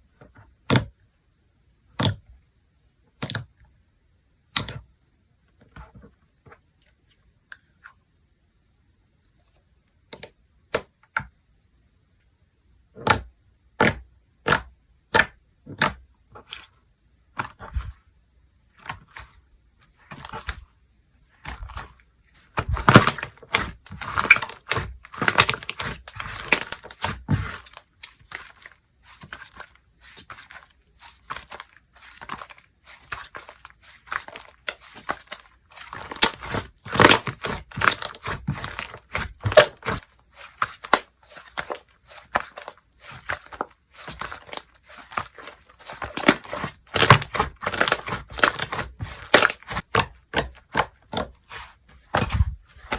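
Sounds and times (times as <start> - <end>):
slime crackling and popping: 22.5 - 51.3.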